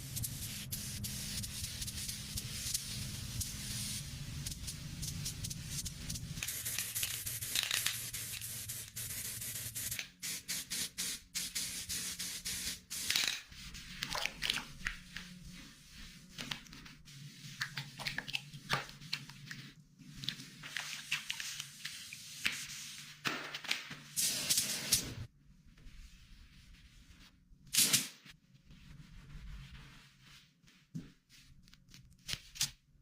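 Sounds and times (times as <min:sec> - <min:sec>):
scraping and rubbing noises: 0:25.7 - 0:27.4, 0:28.2 - 0:32.8.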